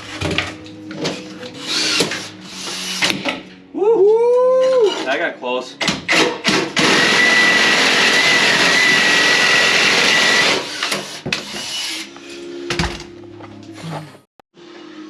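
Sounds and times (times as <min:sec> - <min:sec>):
power tool cutting sheet metal: 0:06.2 - 0:12.1.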